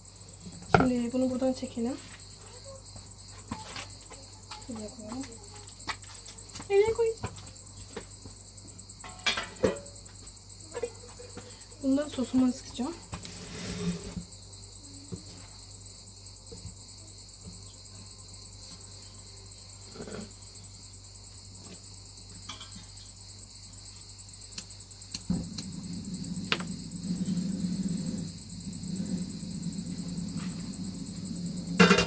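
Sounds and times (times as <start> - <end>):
crickets trilling: 0.0 - 32.0
low hum: 25.2 - 32.0.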